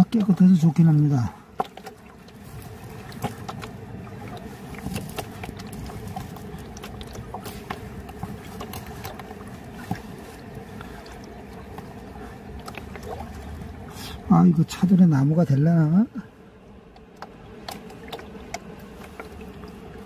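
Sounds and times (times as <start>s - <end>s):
flowing river water: 0.0s - 20.0s
river stones clacking together: 1.5s - 13.4s.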